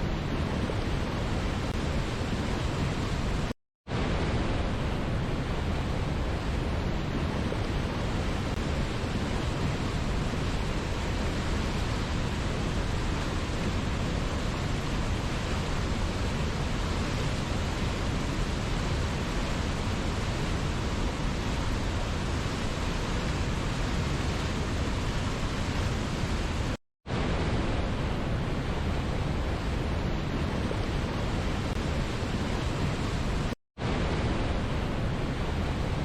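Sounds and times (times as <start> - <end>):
waterfall roaring: 0.0 - 36.0.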